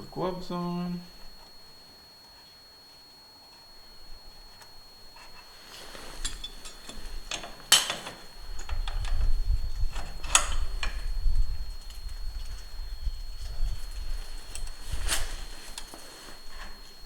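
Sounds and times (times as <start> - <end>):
metal parts clinking and clanking: 6.2 - 9.2.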